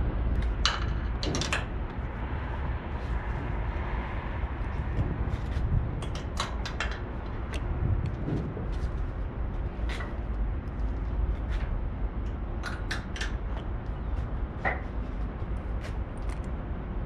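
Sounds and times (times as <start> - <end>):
steady low rumble: 0.0 - 17.0
metal hardware clicking and clanking: 0.4 - 1.7.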